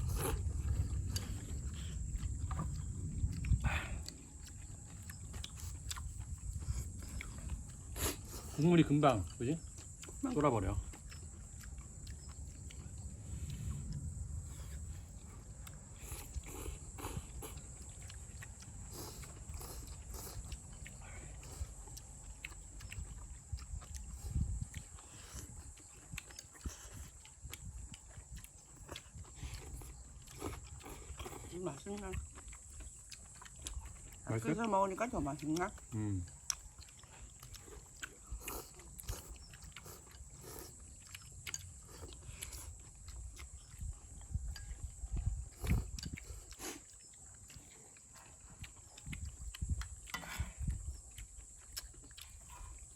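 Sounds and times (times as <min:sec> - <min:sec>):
people slurping noodles: 0:00.0 - 0:02.0, 0:05.6 - 0:09.4, 0:16.0 - 0:17.8, 0:18.9 - 0:21.8, 0:28.9 - 0:32.1, 0:37.6 - 0:41.0, 0:45.5 - 0:46.9, 0:50.1 - 0:50.8
people chewing and slurping: 0:00.0 - 0:52.9.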